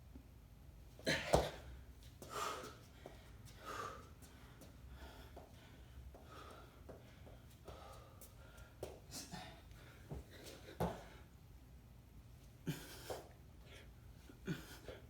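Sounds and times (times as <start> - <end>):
person breathing hard: 2.2 - 11.4.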